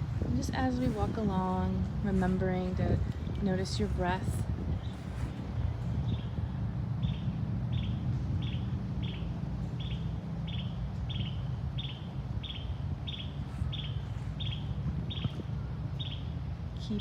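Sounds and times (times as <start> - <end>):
steady low rumble: 0.0 - 17.0
bird chirping: 7.0 - 16.3.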